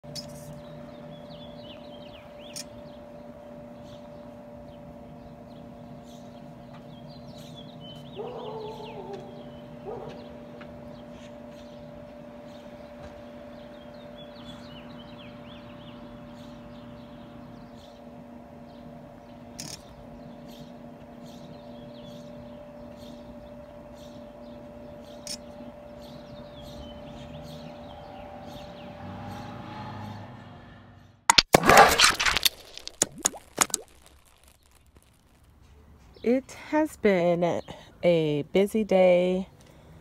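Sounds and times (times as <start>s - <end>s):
steady mechanical hum: 0.0s - 29.0s
songbirds chirping and twittering: 0.0s - 31.3s, 32.8s - 40.0s.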